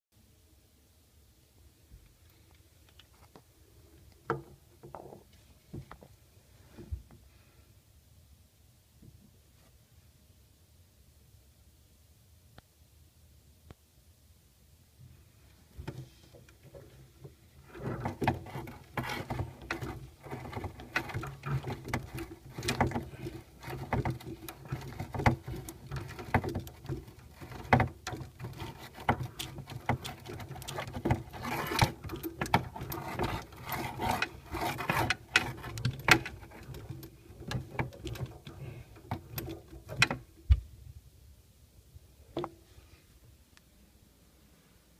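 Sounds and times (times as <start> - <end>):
pipes tapping and clicking: 15.8 - 40.6.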